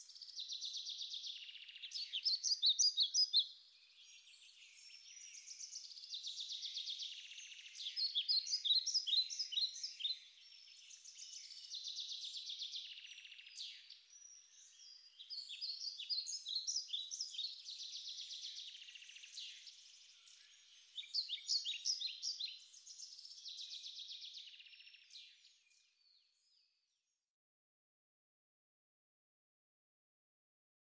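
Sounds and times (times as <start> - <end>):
songbird singing: 0.0 - 26.9.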